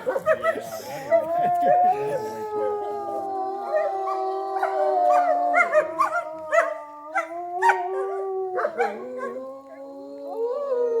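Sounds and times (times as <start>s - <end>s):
wolves yipping and barking: 0.0s - 1.4s, 3.6s - 9.4s
wolves howling: 0.0s - 11.0s.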